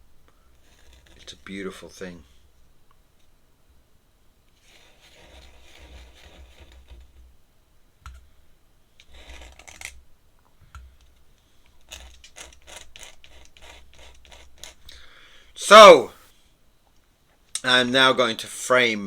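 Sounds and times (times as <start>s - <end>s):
pen scratching on paper: 0.6s - 1.5s, 4.6s - 7.0s, 11.8s - 14.8s.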